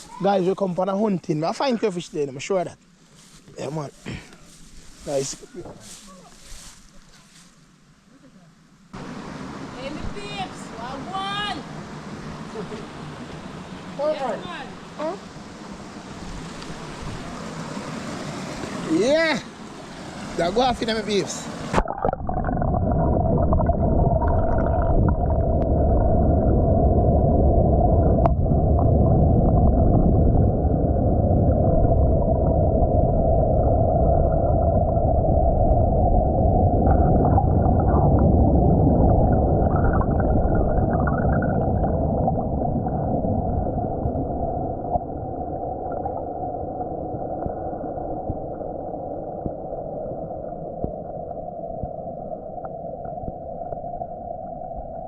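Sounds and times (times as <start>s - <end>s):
underwater river rushing and bubbling: 11.7s - 55.0s.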